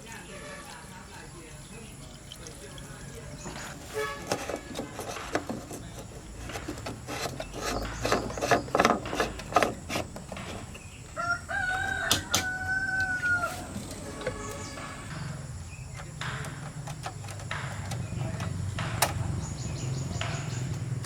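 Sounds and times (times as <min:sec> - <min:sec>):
tools scraping and knocking: 0:03.2 - 0:21.0
rooster crowing: 0:11.1 - 0:15.4.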